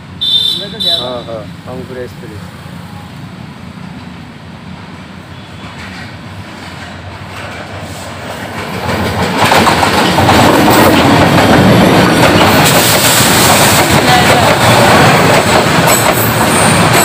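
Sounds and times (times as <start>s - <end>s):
train passing: 0.0s - 17.0s
wheels rushing on rails: 1.4s - 17.0s.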